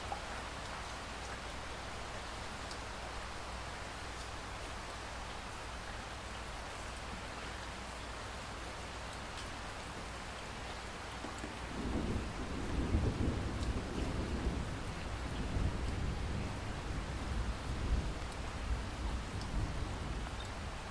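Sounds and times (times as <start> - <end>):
steady rain falling: 0.0 - 20.9
low rumble of thunder: 11.2 - 20.9.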